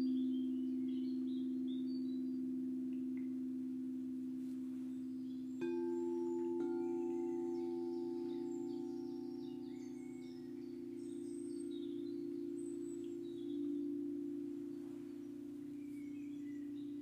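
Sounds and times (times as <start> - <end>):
birds chirping faintly: 0.0 - 17.0
singing bowls ringing: 0.0 - 17.0
singing bowl struck: 5.0 - 17.0.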